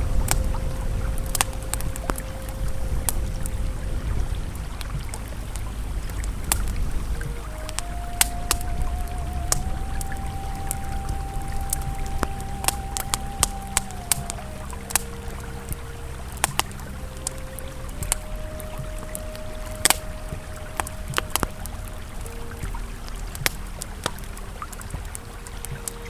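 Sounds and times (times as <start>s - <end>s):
ambient music with held notes: 0.0s - 26.0s
campfire crackling and popping: 0.0s - 26.0s
river flowing: 0.0s - 26.0s.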